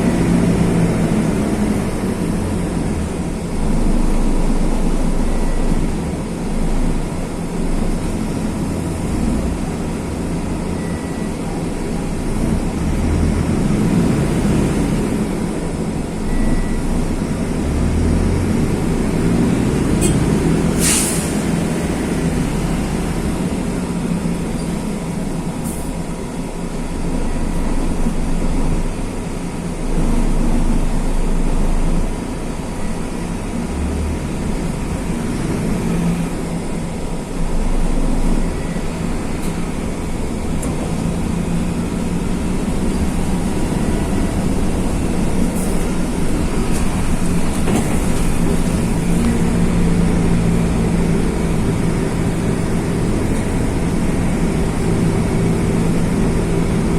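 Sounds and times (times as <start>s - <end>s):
bus diesel engine running: 0.0s - 56.9s.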